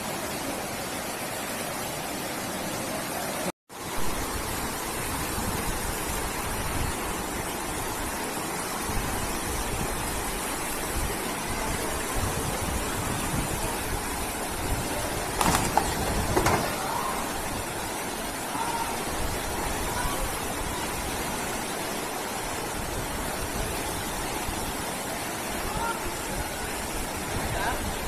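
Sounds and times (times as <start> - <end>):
floodwater rushing: 0.0 - 28.0.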